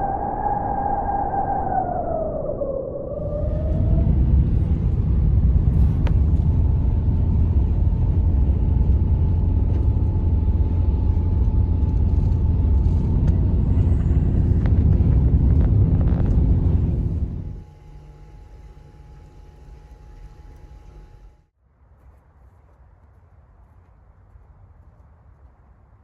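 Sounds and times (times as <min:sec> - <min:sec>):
wind buffeting microphone: 0:00.0 - 0:17.7
faint steady whine: 0:00.0 - 0:21.5.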